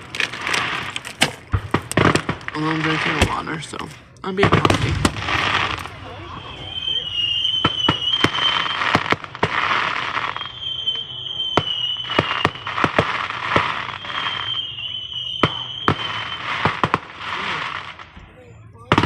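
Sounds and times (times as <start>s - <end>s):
crackling hiss: 0.0s - 18.2s
fireworks bangs and pops: 0.0s - 19.0s
high wavering firework whistle: 5.0s - 18.1s.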